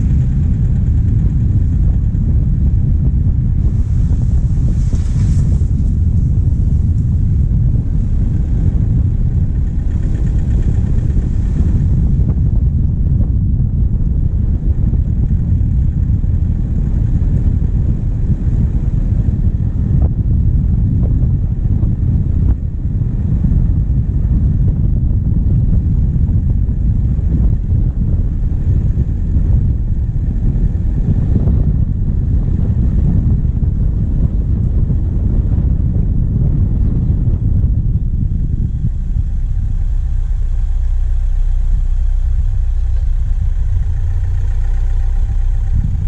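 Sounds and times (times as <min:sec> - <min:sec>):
diesel engine running: 0:00.0 - 0:46.0
wind rumble on microphone: 0:00.0 - 0:46.0.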